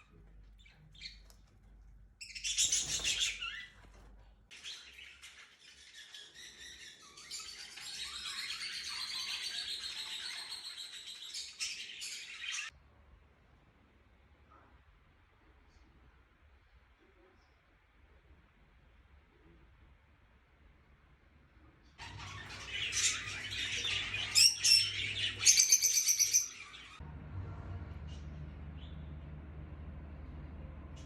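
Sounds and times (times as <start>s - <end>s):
birds chirping and twittering: 0.0s - 12.7s, 22.0s - 27.0s.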